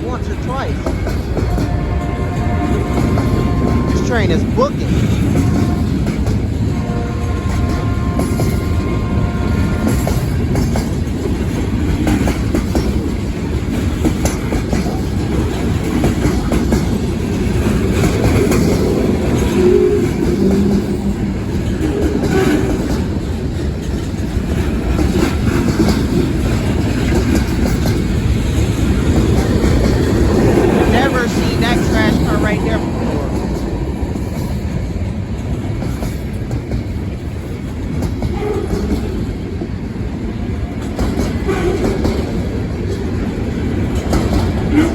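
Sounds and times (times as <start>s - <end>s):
wheels clacking over rail joints: 0.3s - 44.9s
freight cars rumbling past: 15.4s - 36.4s.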